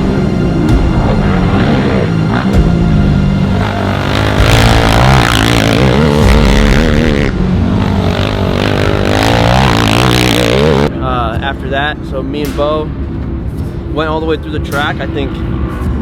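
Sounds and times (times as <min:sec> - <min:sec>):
atv engines revving: 0:00.0 - 0:11.0.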